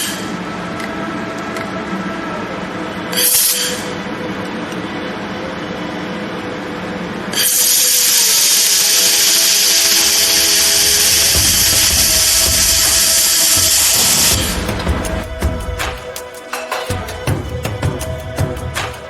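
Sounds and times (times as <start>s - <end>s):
steady machine hum: 3.9s - 16.4s
laser welding hiss: 7.4s - 15.4s.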